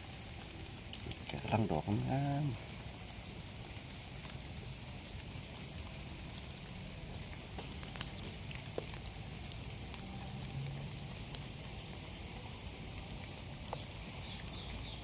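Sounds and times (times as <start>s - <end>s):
light rain pattering: 0.0s - 15.0s.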